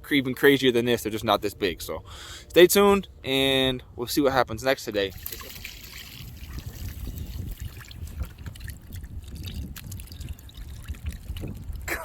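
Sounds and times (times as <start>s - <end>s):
wind buffeting microphone: 5.2s - 12.0s.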